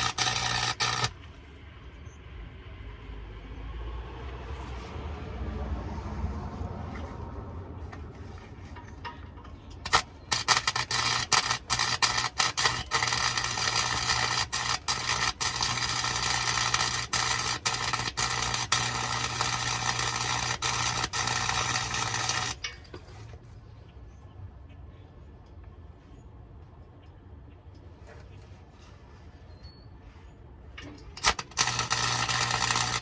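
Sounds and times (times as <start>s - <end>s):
welding arc crackling: 0.0s - 1.2s, 9.8s - 22.6s, 31.2s - 33.0s.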